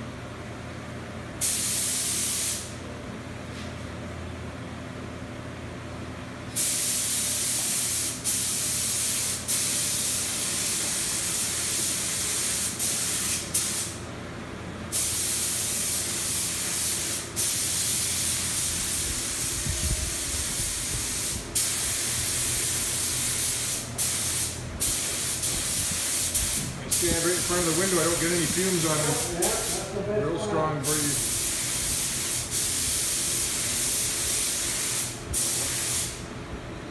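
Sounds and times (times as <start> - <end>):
steady low hum: 0.0 - 36.9
spray paint hissing: 1.4 - 2.7, 6.6 - 14.0, 14.9 - 29.9, 30.8 - 36.2.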